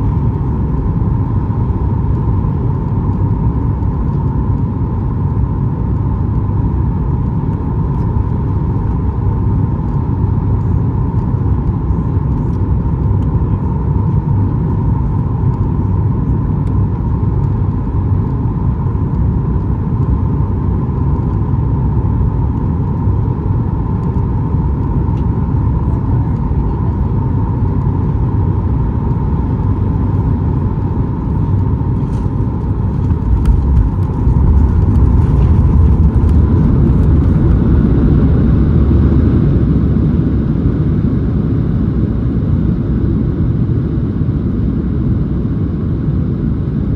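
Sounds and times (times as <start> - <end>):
airliner cabin engine rumble: 0.0 - 46.9.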